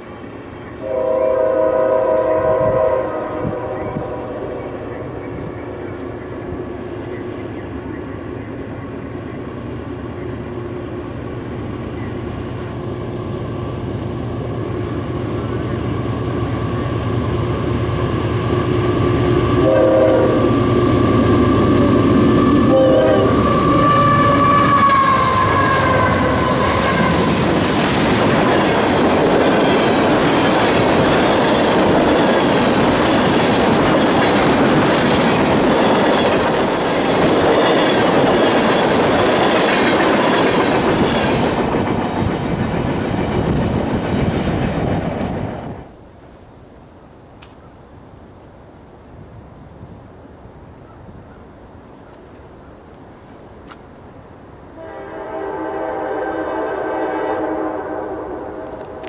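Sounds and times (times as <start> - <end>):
diesel locomotive engine: 0.0 - 46.3, 51.6 - 59.0
train horn toots: 0.8 - 6.1, 19.3 - 27.5, 54.8 - 59.0
train wheels clickety-clack: 23.3 - 45.9.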